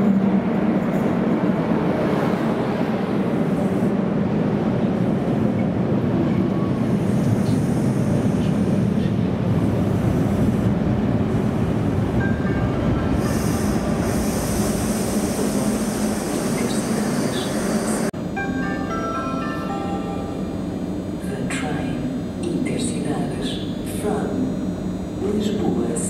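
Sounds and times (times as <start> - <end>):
train wheels rumbling on rail: 0.0 - 18.2
high hiss of train braking: 13.2 - 18.1.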